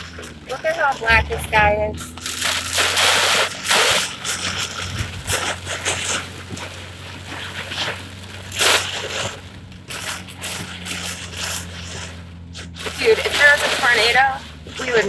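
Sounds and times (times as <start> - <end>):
gusting wind: 0.0 - 15.0
low car hum: 0.0 - 15.0.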